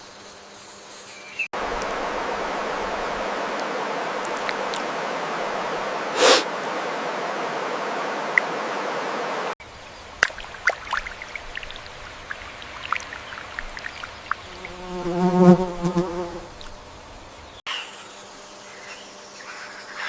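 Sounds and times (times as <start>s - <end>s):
steady rushing noise: 1.6s - 9.6s
flying insect buzzing: 14.4s - 16.8s.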